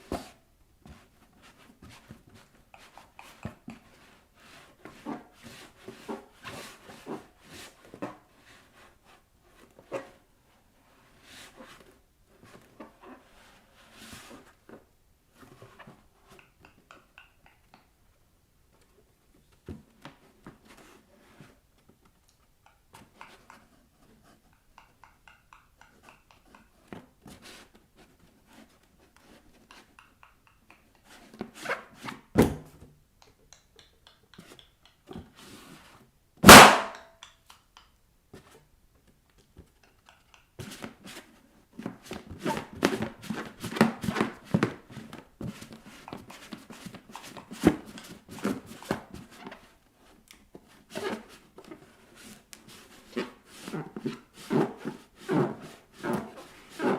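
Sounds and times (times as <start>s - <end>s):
bare feet rubbing balloons: 36.4s - 36.8s, 50.6s - 56.9s
balloon pop: 36.4s - 37.1s.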